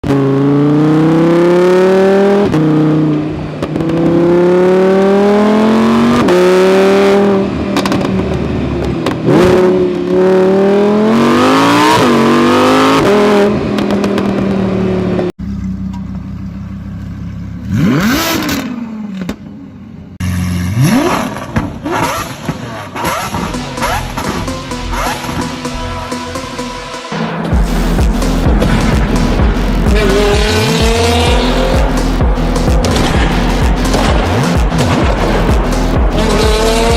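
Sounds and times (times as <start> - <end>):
car engine accelerating through gears: 0.0 - 15.3, 17.6 - 18.9, 27.1 - 36.9
engine revving: 0.0 - 15.3, 17.6 - 18.9, 20.2 - 36.9.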